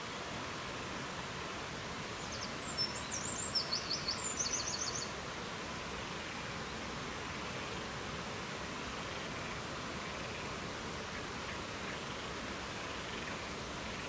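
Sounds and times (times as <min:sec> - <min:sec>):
songbird singing: 0:02.2 - 0:05.2.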